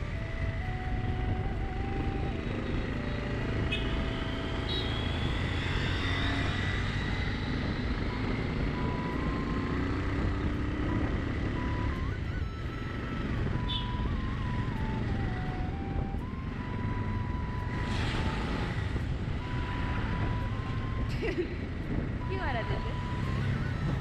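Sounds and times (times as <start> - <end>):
scooter engine and road rumble: 0.0 - 24.0
wind on microphone: 6.6 - 24.0.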